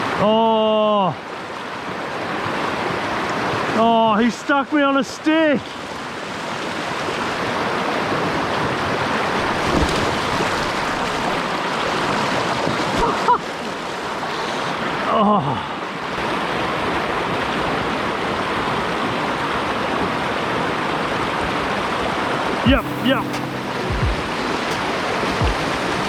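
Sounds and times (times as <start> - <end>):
river water rushing: 16.0 - 26.0.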